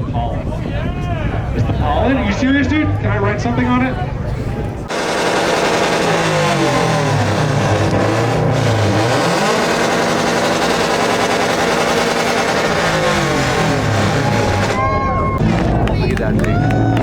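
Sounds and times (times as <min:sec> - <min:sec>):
car engine revving loudly: 0:04.9 - 0:14.8, 0:15.4 - 0:16.0.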